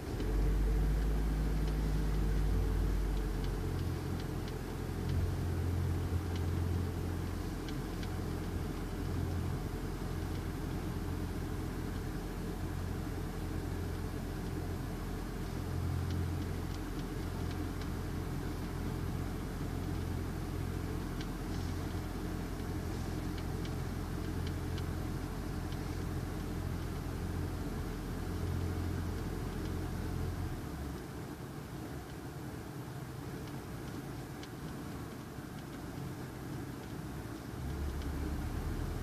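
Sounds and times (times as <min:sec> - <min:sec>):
car engine idling: 0:00.0 - 0:35.1
faint light ticks: 0:01.5 - 0:11.3, 0:11.9 - 0:12.3, 0:15.4 - 0:19.0, 0:21.0 - 0:32.6, 0:33.3 - 0:39.0.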